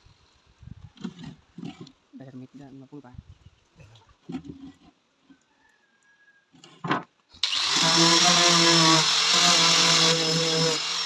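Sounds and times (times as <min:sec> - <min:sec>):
electric power tool running: 0:07.4 - 0:11.0.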